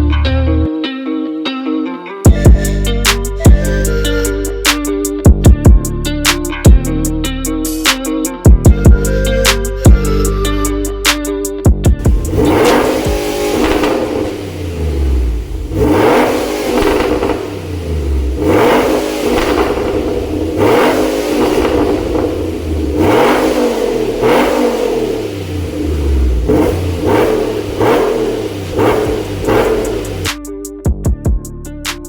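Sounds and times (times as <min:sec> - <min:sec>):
engine revving in throttle blips: 0:12.0 - 0:30.4.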